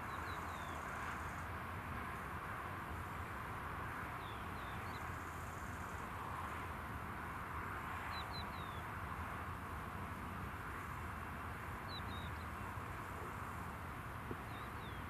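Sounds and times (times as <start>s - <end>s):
small birds chirping: 11.9s - 12.6s, 14.4s - 15.0s.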